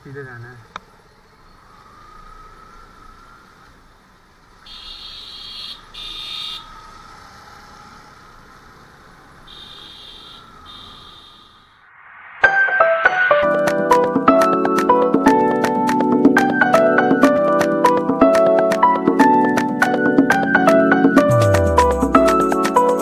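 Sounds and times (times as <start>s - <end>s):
motorcycle engine and road noise: 0.0s - 11.8s
vehicle horn beeping: 4.7s - 6.7s, 9.5s - 11.7s.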